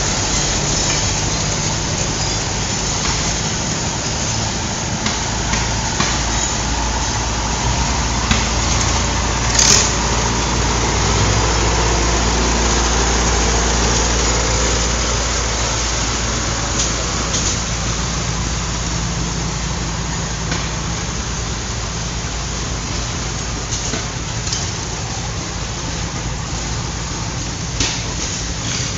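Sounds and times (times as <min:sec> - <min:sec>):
tractor engines running: 0:00.0 - 0:28.9.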